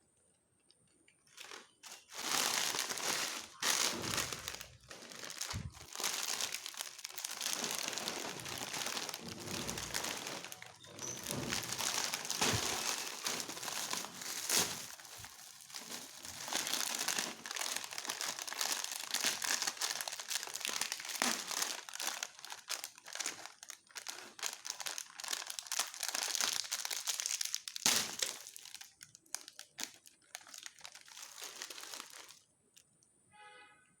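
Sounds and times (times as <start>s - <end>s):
plastic snack packets crinkling: 0.6s - 33.0s
brief tone: 10.5s - 11.3s.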